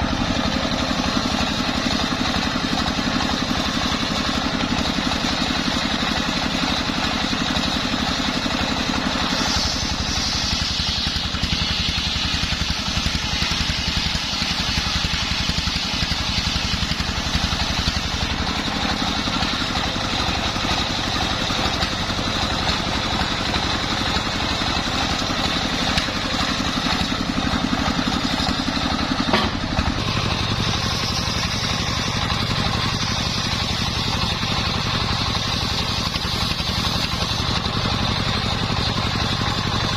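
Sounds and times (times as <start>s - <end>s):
circular saw engine running: 0.0s - 39.9s
high hiss: 9.1s - 17.0s.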